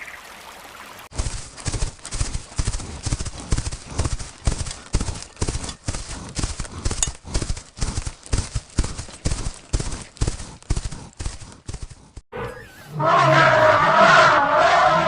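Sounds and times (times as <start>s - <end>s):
hooves clip-clopping on hard ground: 1.1s - 12.2s.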